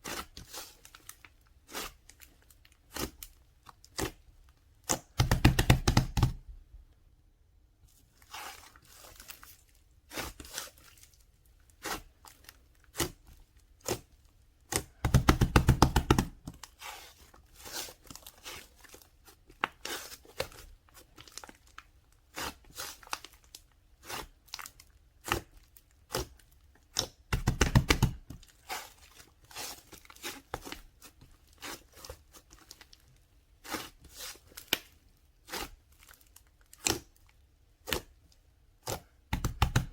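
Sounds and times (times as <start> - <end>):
paper and plastic crinkling: 28.3 - 33.0.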